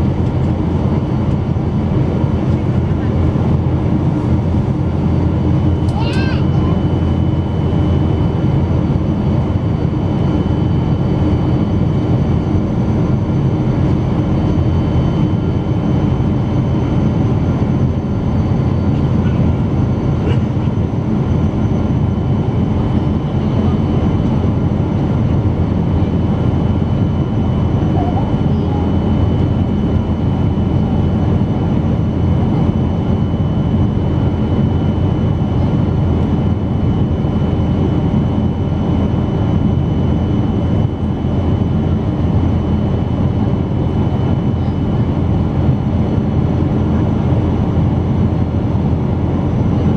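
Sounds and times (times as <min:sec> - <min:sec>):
airliner cabin engine rumble: 0:00.0 - 0:49.9.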